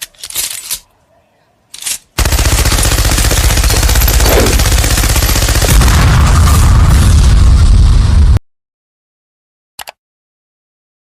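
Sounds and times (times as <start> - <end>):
loud rapid rattling: 2.2 - 5.8.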